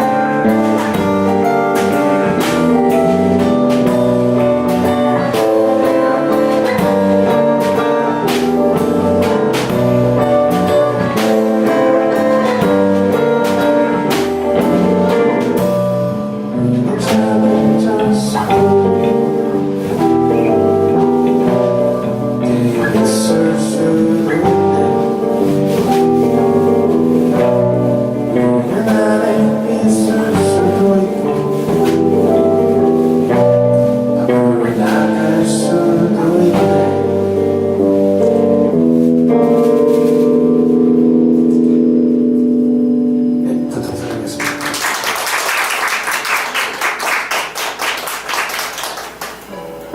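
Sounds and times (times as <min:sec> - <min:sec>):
live band with guitar: 0:00.0 - 0:49.9
audience applauding: 0:44.1 - 0:49.9.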